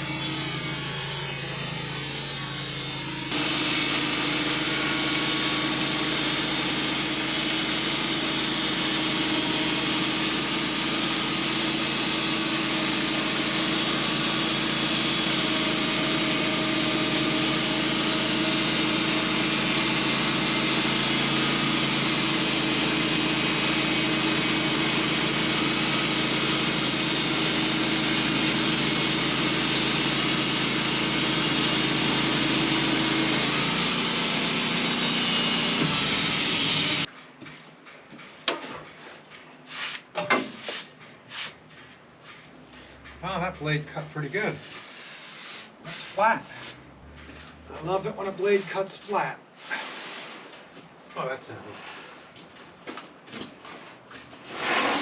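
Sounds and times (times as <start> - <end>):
saw blade cutting log: 0.0 - 37.1, 43.2 - 50.2, 54.4 - 55.0
sawmill engine running: 0.0 - 37.1, 40.3 - 49.5.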